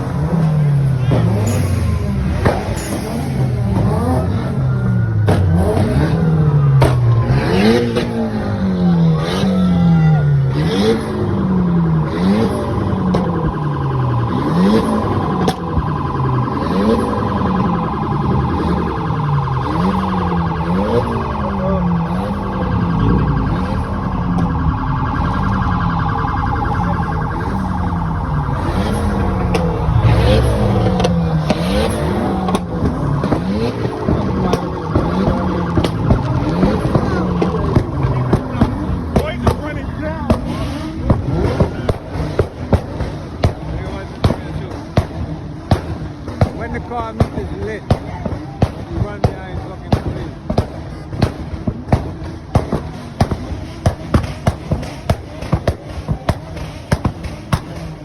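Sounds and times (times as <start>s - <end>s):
siren-like wail: 0.0s - 48.9s
car engines revving: 0.0s - 58.0s.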